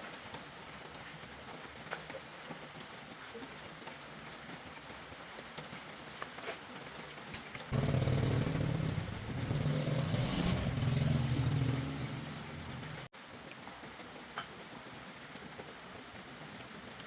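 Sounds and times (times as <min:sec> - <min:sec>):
small vehicle engine running: 0:07.7 - 0:13.1.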